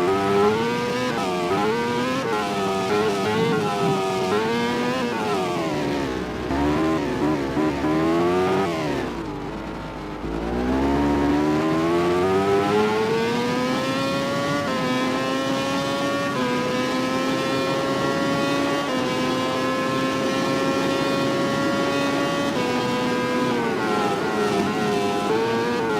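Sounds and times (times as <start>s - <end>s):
racing motorcycle engine: 0.0s - 25.9s.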